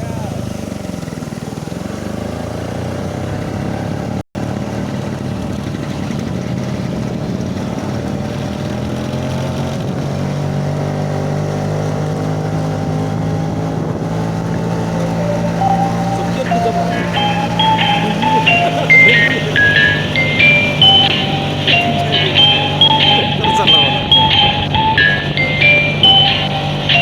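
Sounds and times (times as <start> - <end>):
scooter engine running: 0.0 - 23.2.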